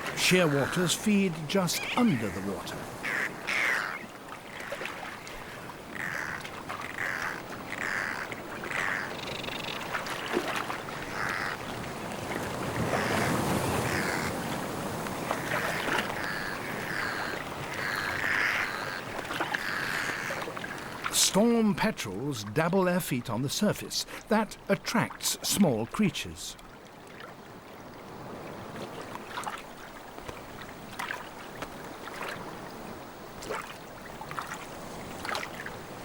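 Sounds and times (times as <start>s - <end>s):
sea waves washing: 0.0s - 9.1s, 9.8s - 36.0s
seabirds calling: 0.0s - 26.8s.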